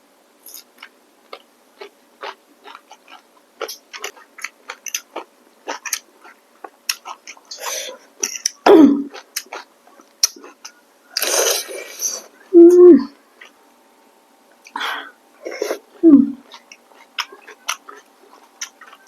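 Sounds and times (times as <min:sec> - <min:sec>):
wet chewing clicks and smacks: 0:00.5 - 0:07.5, 0:08.2 - 0:11.3, 0:16.4 - 0:19.0
short vocal sound: 0:11.2 - 0:13.2, 0:14.7 - 0:16.4.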